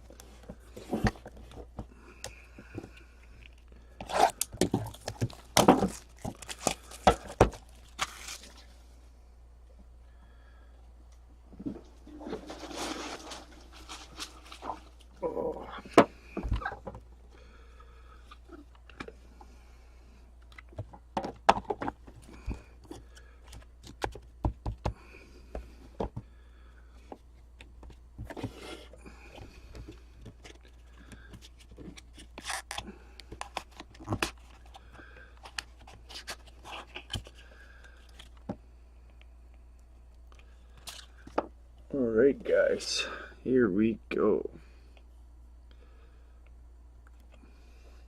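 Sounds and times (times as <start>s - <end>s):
packaging rustling and tearing: 3.5s - 8.8s, 12.2s - 15.2s, 30.3s - 38.4s
cards clicking and tapping: 22.9s - 25.0s.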